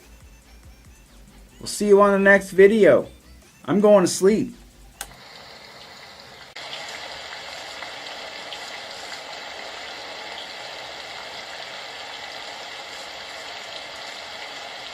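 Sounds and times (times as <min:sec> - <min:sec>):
rushing water hiss: 0:05.2 - 0:14.9.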